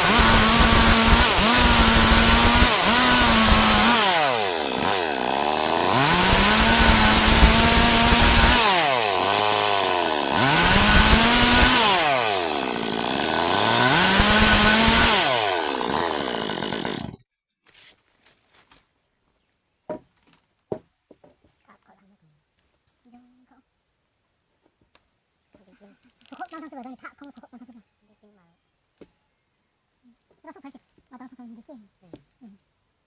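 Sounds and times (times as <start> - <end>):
chainsaw cutting at high revs: 0.0 - 17.2.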